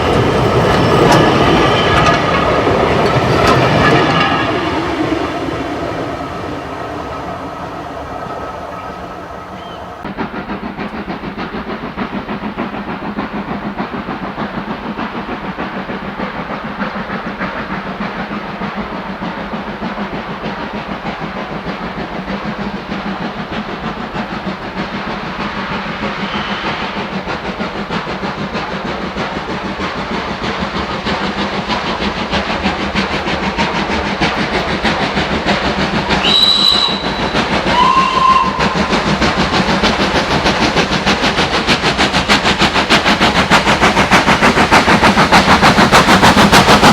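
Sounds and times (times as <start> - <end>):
steam locomotive exhaust chatter: 0.0 - 46.9
steam whistle blasts: 3.9 - 10.1, 36.0 - 39.2.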